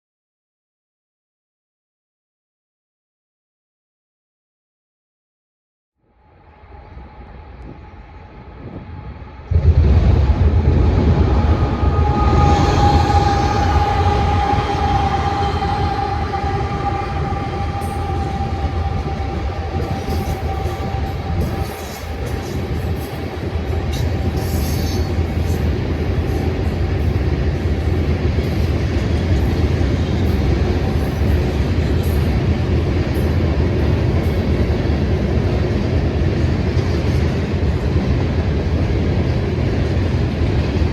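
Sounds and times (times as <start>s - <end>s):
freight train rumbling past: 6.1s - 40.9s
long ringing tone: 8.1s - 34.8s.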